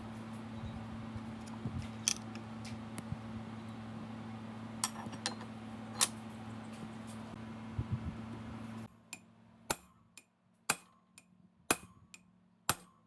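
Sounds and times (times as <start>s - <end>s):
steady low hum: 0.0s - 13.0s
metal tools clinking: 4.8s - 6.2s.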